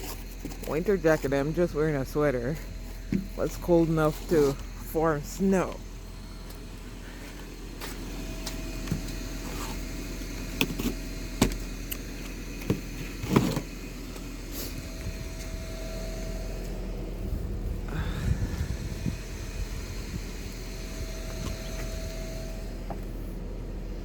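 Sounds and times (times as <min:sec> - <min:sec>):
vehicle hum: 0:00.0 - 0:24.0.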